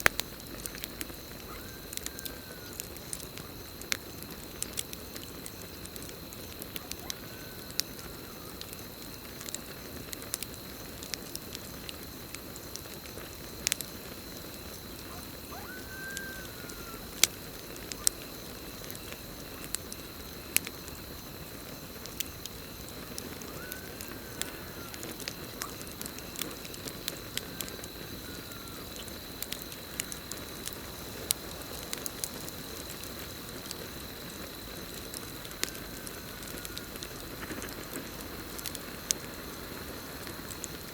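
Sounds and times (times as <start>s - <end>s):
campfire crackling and popping: 0.0s - 40.9s
cricket trill: 0.0s - 40.9s
night animal calls: 1.3s - 3.6s, 6.6s - 8.6s, 14.6s - 18.8s, 22.9s - 29.2s.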